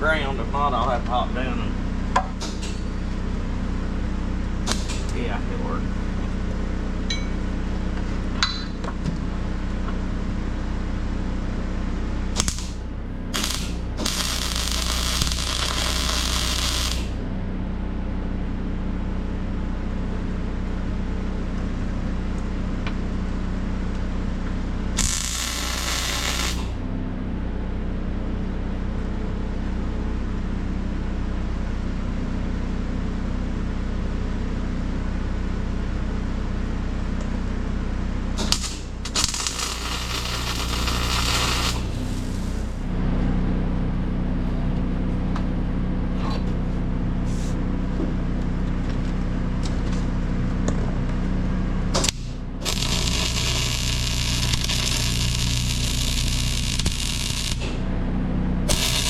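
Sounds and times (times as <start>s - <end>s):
engine running hum: 0.0s - 59.0s
welding arc crackling and hissing: 4.7s - 5.2s, 12.4s - 17.2s, 25.0s - 26.8s, 38.4s - 42.7s, 52.0s - 57.8s, 58.7s - 59.0s.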